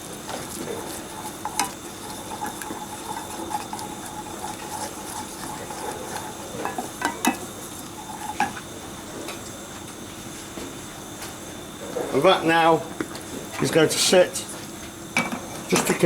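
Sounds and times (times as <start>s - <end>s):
utensil stirring sauce in pan: 0.0s - 9.4s
background hum: 0.0s - 16.0s
utensil clinking against pan: 1.0s - 7.5s.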